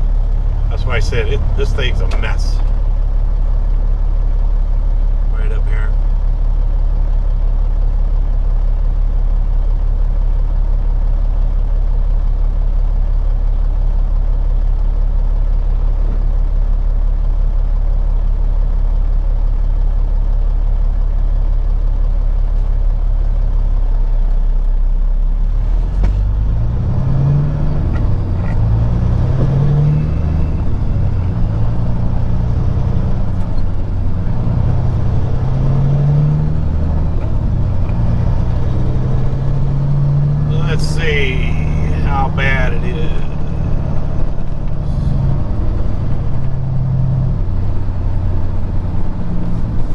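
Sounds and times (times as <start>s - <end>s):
truck diesel engine running: 0.0s - 12.6s, 25.6s - 49.9s.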